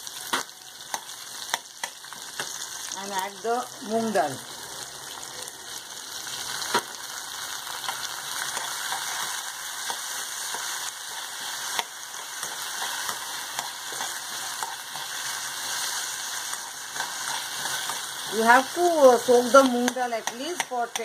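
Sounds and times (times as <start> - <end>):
food sizzling in hot oil: 0.0 - 21.0
steel spoon scraping a pan: 7.8 - 21.0.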